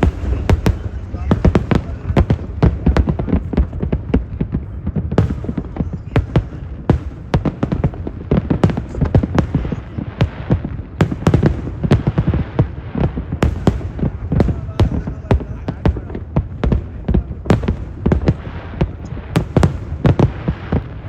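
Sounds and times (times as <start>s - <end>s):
continuous low rumble: 0.0s - 11.8s
fireworks bursting with sharp bangs: 0.0s - 21.0s.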